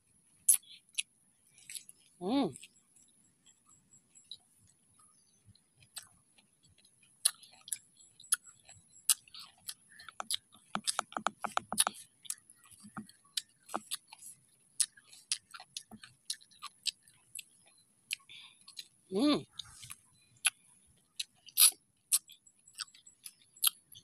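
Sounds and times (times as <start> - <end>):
eating mouth clicks and smacks: 0.5 - 2.0, 5.8 - 20.6, 21.2 - 24.0.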